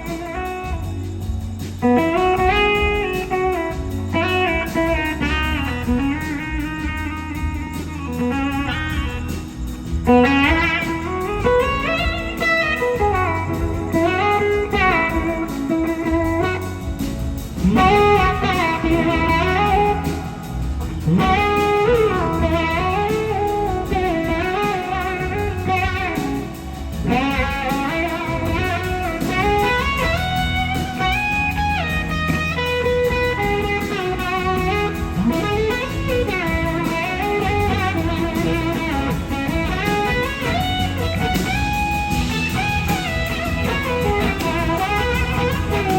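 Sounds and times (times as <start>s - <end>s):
bass and drums: 0.0s - 45.9s
electric slide guitar soloing: 10.1s - 45.9s.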